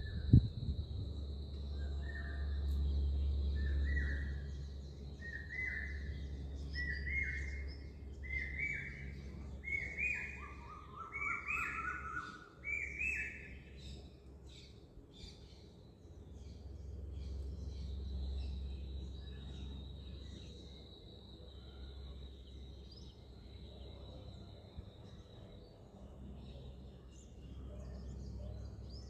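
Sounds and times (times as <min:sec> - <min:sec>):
faint high hum: 0:00.0 - 0:29.0
lower bird calls: 0:01.7 - 0:15.7
bird calling rising notes: 0:05.2 - 0:13.6.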